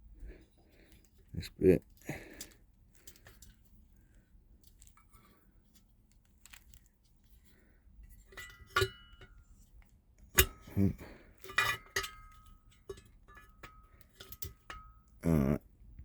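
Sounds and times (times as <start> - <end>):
metal parts clinking: 10.4 - 14.8.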